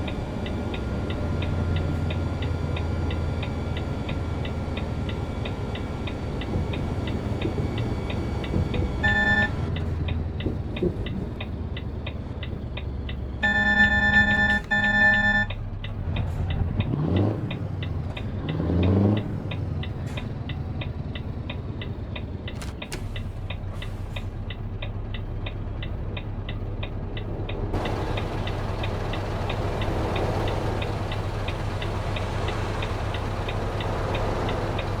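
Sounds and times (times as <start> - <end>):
truck engine hum: 0.0 - 35.0
turn signal ticking: 0.0 - 35.0
pitched beep: 9.0 - 9.5, 13.4 - 15.5.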